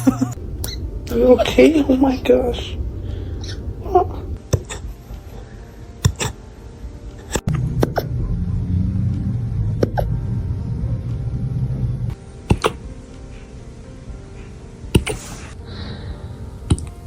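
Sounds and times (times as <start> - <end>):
low rumble: 0.0 - 5.7, 6.8 - 13.0.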